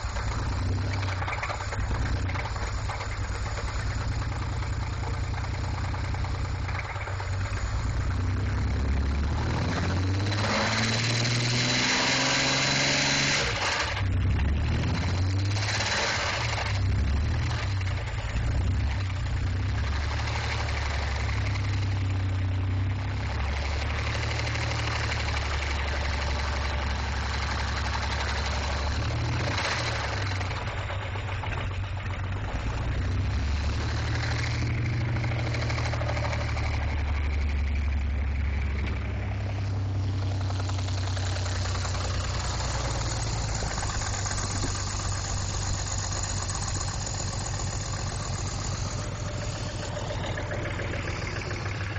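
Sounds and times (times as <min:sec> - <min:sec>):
car engine running: 0:00.0 - 0:51.9.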